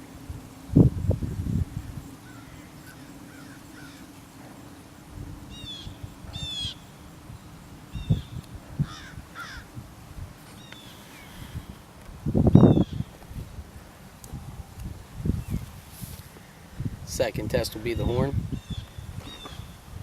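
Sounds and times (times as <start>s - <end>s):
crows cawing: 2.2s - 4.1s, 8.8s - 9.7s.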